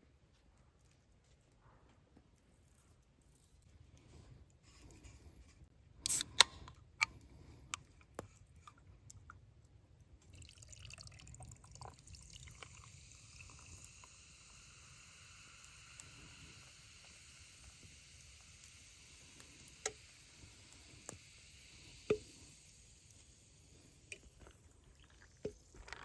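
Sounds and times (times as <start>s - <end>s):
food sizzling in a pan: 12.7s - 25.9s.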